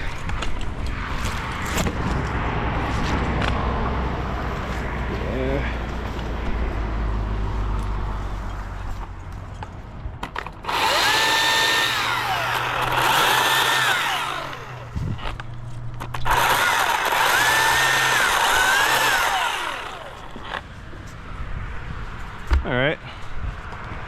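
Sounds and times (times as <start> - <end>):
chainsaw cutting: 10.6 - 15.4, 16.0 - 20.8.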